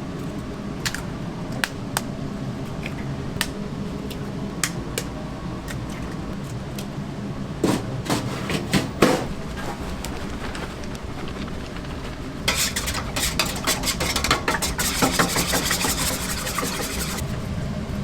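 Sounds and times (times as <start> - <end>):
low machinery hum: 0.0 - 18.0
utensils and cookware knocking: 12.5 - 17.2.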